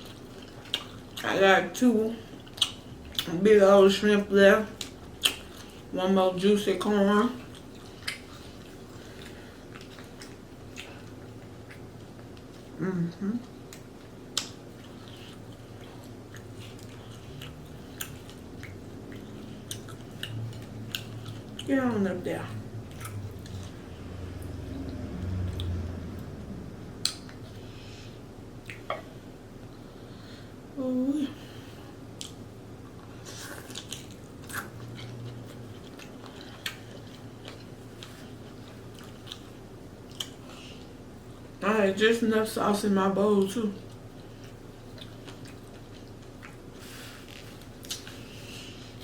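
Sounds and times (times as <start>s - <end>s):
chewing seafood: 0.0s - 1.3s, 2.2s - 3.4s, 7.2s - 12.8s, 13.4s - 21.7s, 22.8s - 26.2s, 32.1s - 41.6s, 43.8s - 49.0s
faint low hum: 0.0s - 49.0s
lip smacks: 2.5s - 3.3s, 4.8s - 5.7s, 7.5s - 12.5s, 13.7s - 15.1s, 27.0s - 27.6s, 28.6s - 29.0s, 47.2s - 48.2s.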